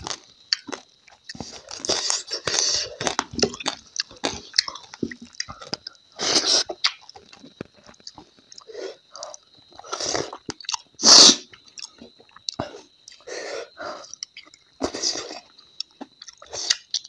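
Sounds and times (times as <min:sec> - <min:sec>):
chewing and lip smacking: 0:00.0 - 0:13.3, 0:14.0 - 0:17.0
noisy breaths: 0:12.6 - 0:14.2.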